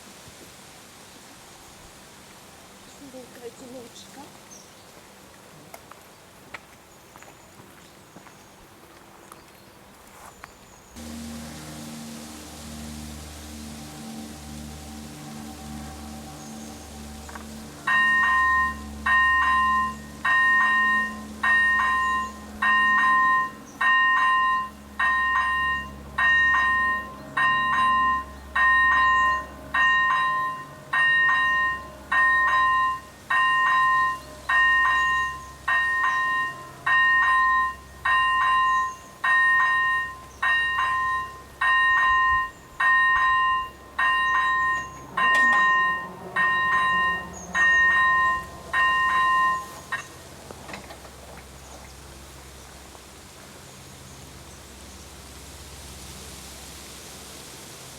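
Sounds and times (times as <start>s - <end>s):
railway crossing bell two-tone chime: 15.3s - 50.3s.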